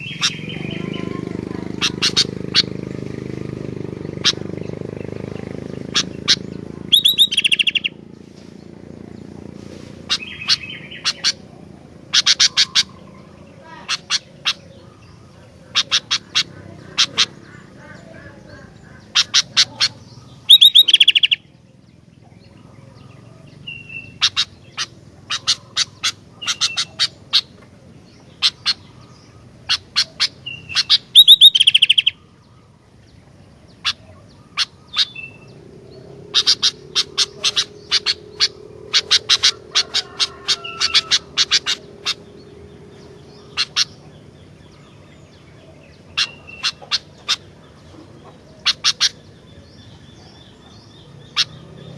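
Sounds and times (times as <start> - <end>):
bird singing sharp notes: 0.0 - 8.0, 10.0 - 21.5, 28.3 - 32.7.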